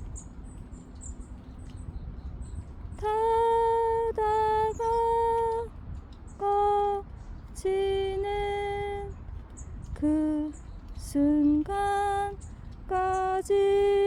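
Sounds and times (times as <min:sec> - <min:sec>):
woman singing long notes: 0:03.0 - 0:05.7, 0:06.4 - 0:09.2, 0:10.0 - 0:14.0.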